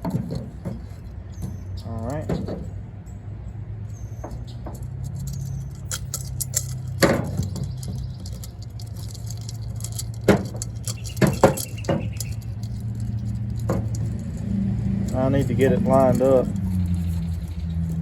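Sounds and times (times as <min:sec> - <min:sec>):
small metal chain clinking: 0:03.9 - 0:18.0.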